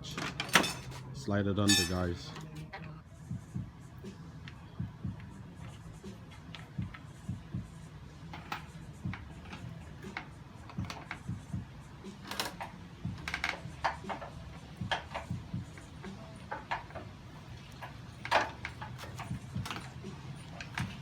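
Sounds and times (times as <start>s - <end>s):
metal parts and tools clicking: 0.1s - 1.0s, 12.0s - 21.0s
steady low hum: 2.2s - 21.0s.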